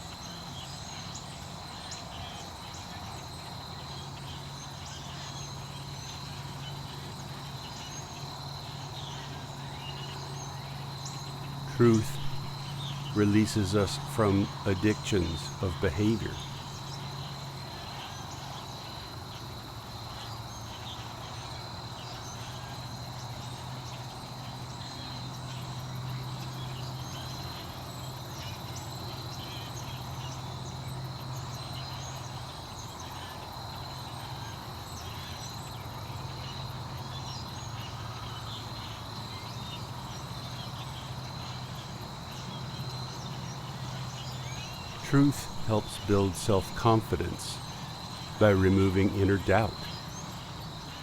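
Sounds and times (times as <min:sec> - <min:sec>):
low steady hum: 0:11.6 - 0:17.0, 0:44.7 - 0:51.0.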